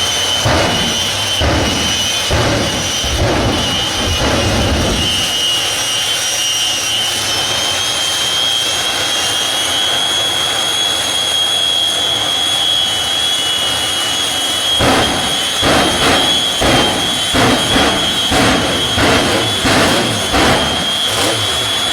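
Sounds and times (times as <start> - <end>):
jet turbine whine: 0.0 - 21.9
low rumbling pulses: 0.4 - 5.4, 14.8 - 21.9.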